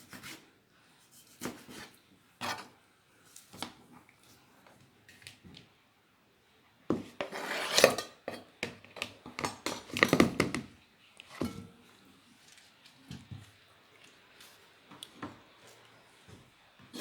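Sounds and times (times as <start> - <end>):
knife scraping on cutting board: 1.6 - 2.7, 7.2 - 8.4.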